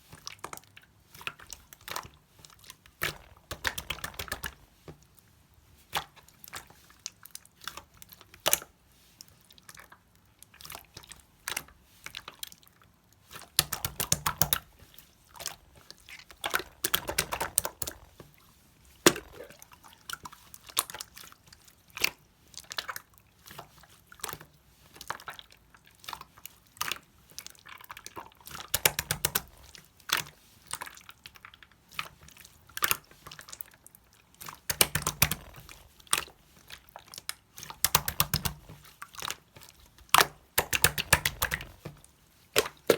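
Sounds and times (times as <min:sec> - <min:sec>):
slime wet clicks and pops: 0:19.0 - 0:19.6, 0:34.7 - 0:35.5, 0:37.6 - 0:38.6, 0:40.1 - 0:41.7
slime air bubbles crackling: 0:19.0 - 0:19.9.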